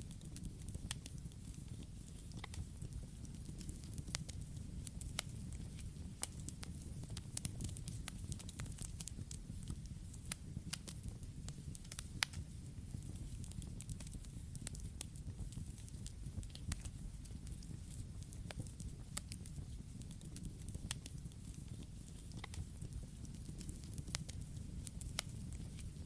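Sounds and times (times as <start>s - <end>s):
campfire crackling and popping: 0.0s - 26.0s
low fire rumble: 0.0s - 26.0s.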